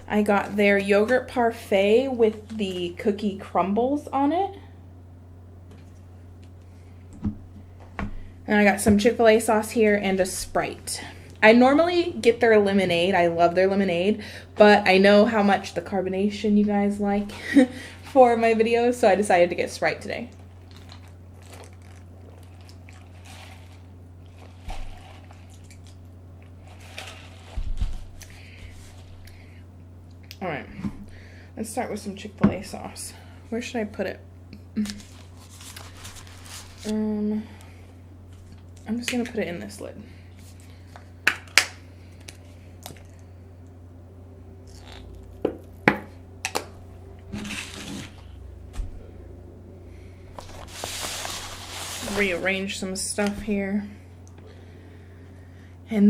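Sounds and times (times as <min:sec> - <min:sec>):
steady low hum: 0:00.0 - 0:56.0
rustling of food containers: 0:20.4 - 0:29.3, 0:35.0 - 0:36.9, 0:47.3 - 0:48.8, 0:50.3 - 0:52.5.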